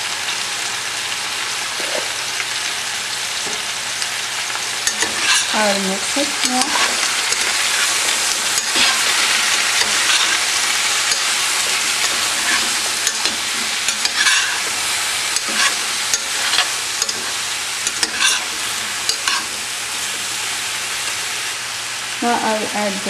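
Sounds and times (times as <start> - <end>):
vegetables sizzling in oil: 0.0 - 23.0
metal spoon scraping a pot: 4.8 - 19.5.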